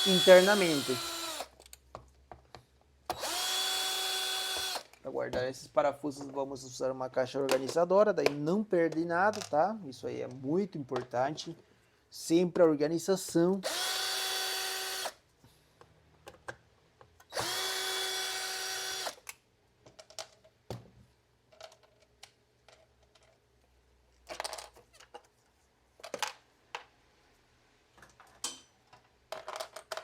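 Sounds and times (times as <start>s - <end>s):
electric screwdriver running: 0.0s - 1.6s, 3.1s - 4.9s, 13.6s - 15.2s, 17.3s - 19.2s
small plastic parts clicking: 28.0s - 30.0s.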